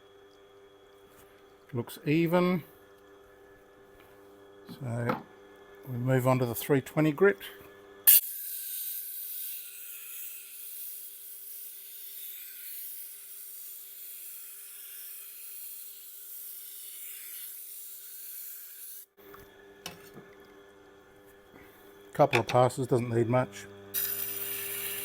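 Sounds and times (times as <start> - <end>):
faint machine hum: 0.0 - 8.1, 19.1 - 25.0
knife grinding on wheel: 23.9 - 25.0.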